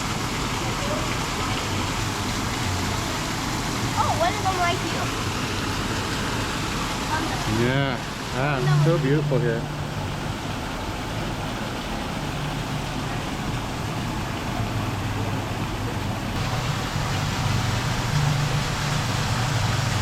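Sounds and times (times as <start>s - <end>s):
steady rushing noise: 1.9s - 14.5s, 15.2s - 20.0s
low hum: 2.0s - 10.6s.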